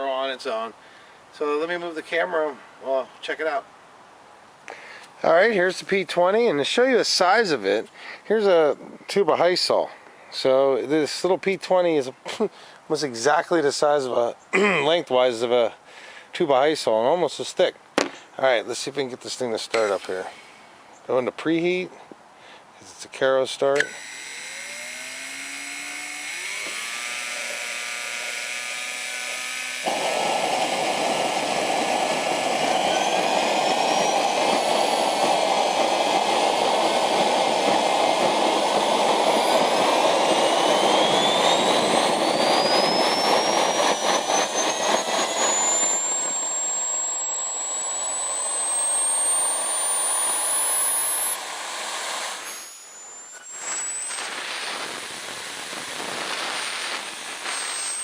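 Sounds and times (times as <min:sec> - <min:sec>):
jet turbine whining: 0:19.6 - 0:20.2, 0:23.7 - 0:58.0
jet turbine roar: 0:23.8 - 0:58.0.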